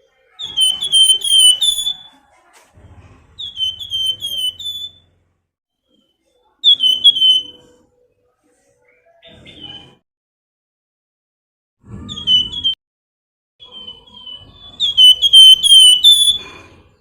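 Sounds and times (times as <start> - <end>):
bird whistling downward slurs: 0.4 - 2.2, 3.4 - 5.1, 6.6 - 7.7, 12.0 - 12.8, 13.6 - 16.7.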